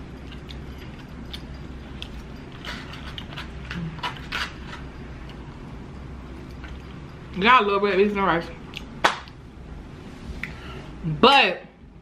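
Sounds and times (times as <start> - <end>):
low steady hum: 0.0 - 12.0
chewing with mouth clicks: 0.1 - 5.6, 6.3 - 7.1, 8.6 - 9.4.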